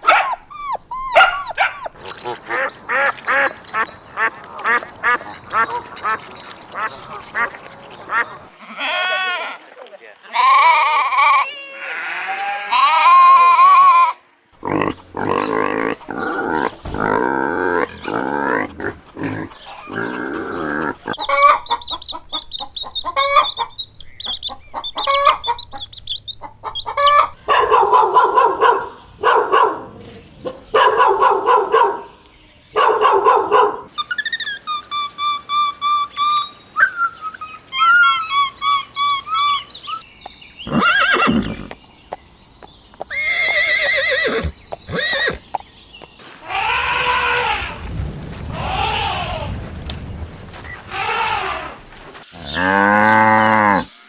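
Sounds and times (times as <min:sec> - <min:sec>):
gliding animal call: 0:00.0 - 0:02.7, 0:14.6 - 0:21.8, 0:34.0 - 0:40.0, 0:46.4 - 0:54.0
high chirping: 0:00.0 - 0:02.8, 0:14.6 - 0:29.8
rapid repeated animal calls: 0:00.0 - 0:03.8, 0:14.6 - 0:29.7, 0:32.8 - 0:40.0, 0:50.7 - 0:53.0
farm animal calls: 0:00.0 - 0:09.5, 0:14.6 - 0:54.0.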